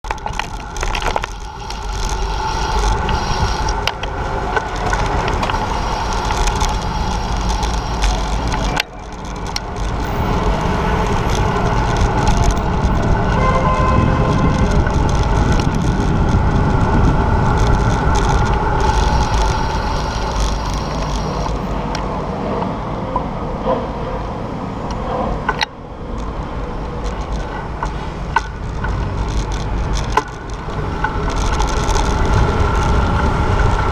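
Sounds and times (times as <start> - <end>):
mechanical clicks and rattles: 0.0 - 21.7, 25.5 - 33.9
tyre noise: 0.0 - 33.9
vehicle engines running: 0.0 - 33.9.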